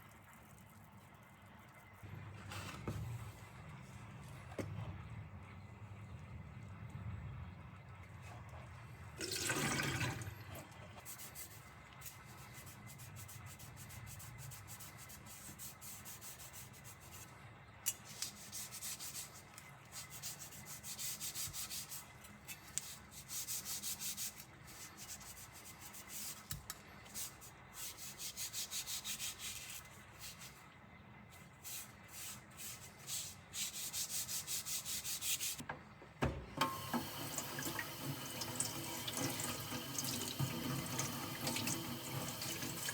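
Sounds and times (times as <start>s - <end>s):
tap running: 35.6s - 42.9s.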